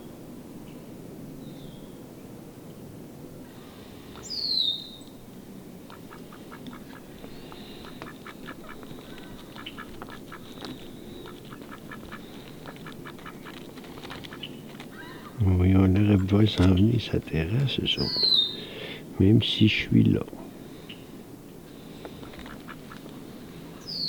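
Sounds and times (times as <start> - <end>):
ducks quacking: 5.9 - 14.5, 15.1 - 19.8, 22.1 - 23.1.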